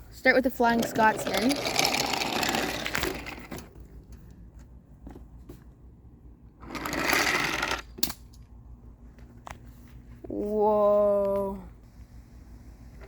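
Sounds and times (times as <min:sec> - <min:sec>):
wheels clicking over track joints: 0:00.3 - 0:04.2, 0:06.6 - 0:08.2
toy train motor whirring: 0:00.7 - 0:03.6, 0:06.6 - 0:07.8.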